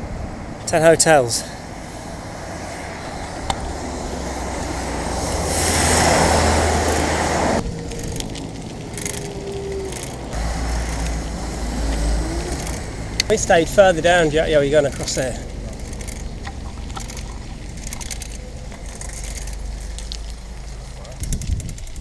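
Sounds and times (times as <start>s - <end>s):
road traffic: 0.0s - 22.0s
wind rushing: 1.6s - 14.6s
low rumble: 1.6s - 22.0s.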